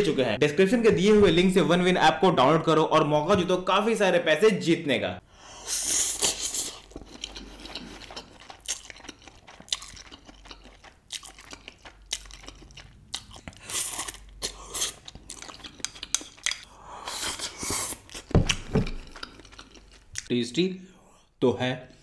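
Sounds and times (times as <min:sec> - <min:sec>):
person slurping noodles: 0:05.5 - 0:08.4, 0:13.5 - 0:15.0.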